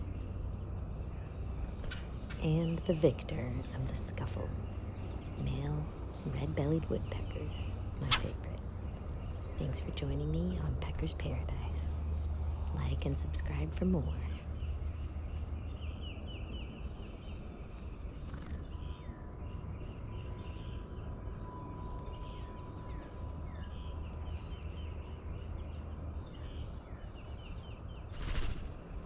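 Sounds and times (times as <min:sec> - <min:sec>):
low outdoor rumble: 0:01.3 - 0:15.5
faint steady tone: 0:01.4 - 0:15.4
birds chirping: 0:01.4 - 0:15.5.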